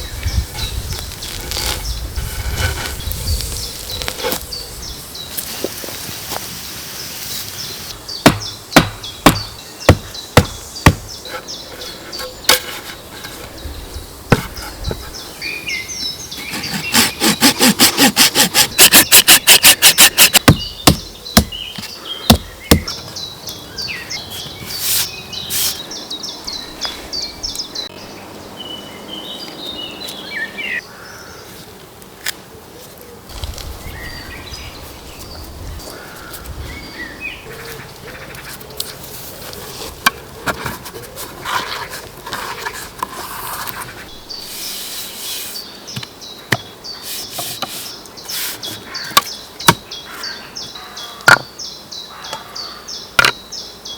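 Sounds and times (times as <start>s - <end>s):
small birds chirping: 0.0s - 31.5s, 33.4s - 53.9s
knocks and taps on wood: 20.3s - 23.0s.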